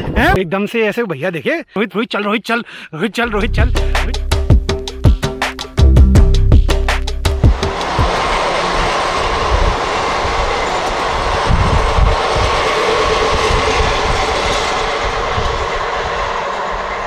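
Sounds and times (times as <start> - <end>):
low thumps: 3.3 - 8.1
passenger train passing: 3.3 - 17.0.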